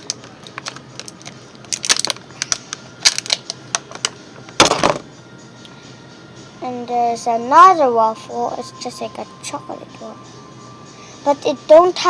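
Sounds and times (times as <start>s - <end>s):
plastic toys clattering: 0.0s - 3.5s.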